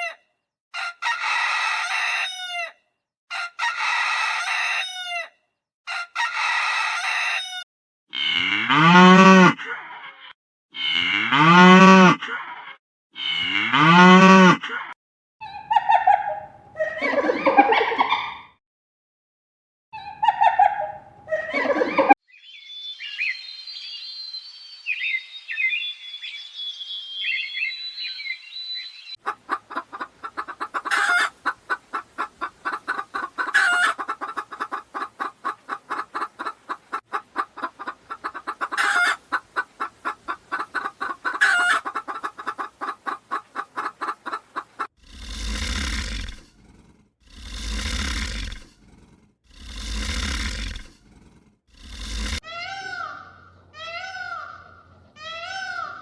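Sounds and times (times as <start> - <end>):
small birds chirping: 22.3 - 44.9
poultry clucking: 29.2 - 44.9.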